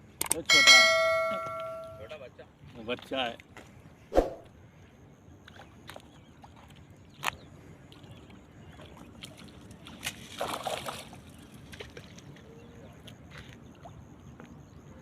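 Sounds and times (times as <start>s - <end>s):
water sloshing: 8.0s - 12.5s
water splash: 9.9s - 11.2s.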